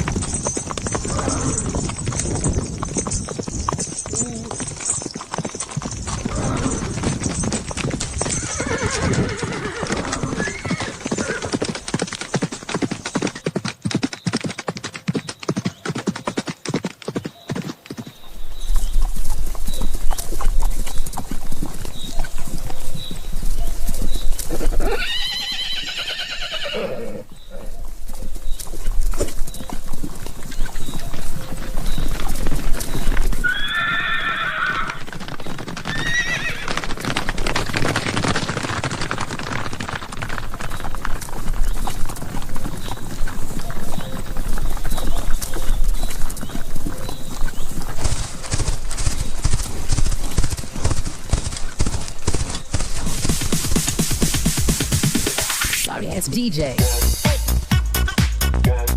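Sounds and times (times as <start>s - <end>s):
horse hooves galloping: 0.0s - 58.8s
horse whinnying: 0.4s - 3.1s, 4.0s - 11.8s, 24.5s - 27.8s, 33.4s - 37.0s.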